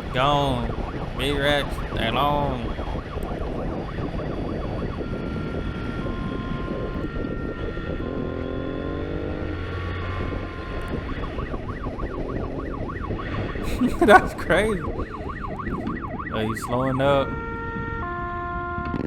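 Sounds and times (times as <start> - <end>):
police siren yelping: 0.0 - 3.0, 10.9 - 18.7
wind and road noise: 0.0 - 13.6.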